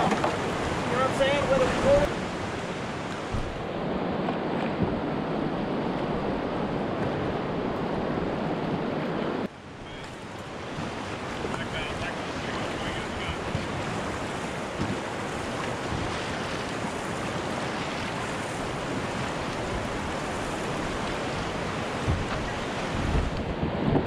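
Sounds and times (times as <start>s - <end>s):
river water rushing over rocks: 0.0s - 23.5s
low thumps: 3.2s - 3.7s, 22.0s - 22.4s.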